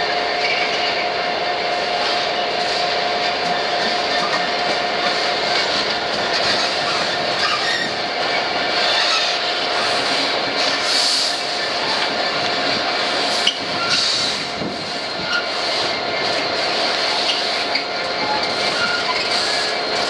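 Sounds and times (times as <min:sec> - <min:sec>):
diesel locomotive engine: 0:00.0 - 0:20.0
wagon wheels on rails: 0:03.2 - 0:20.0.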